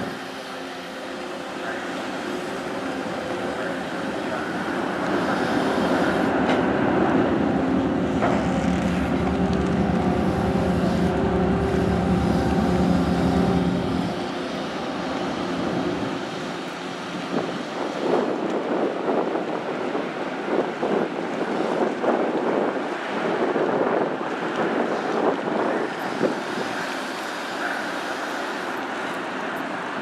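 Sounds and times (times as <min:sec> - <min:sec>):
ferry engines droning: 0:00.0 - 0:18.8
wind buffeting microphone: 0:02.4 - 0:27.8.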